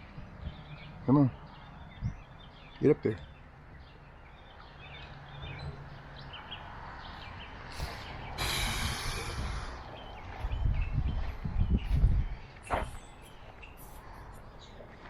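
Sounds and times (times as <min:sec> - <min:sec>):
burst of hissing noise: 0:07.8 - 0:09.8.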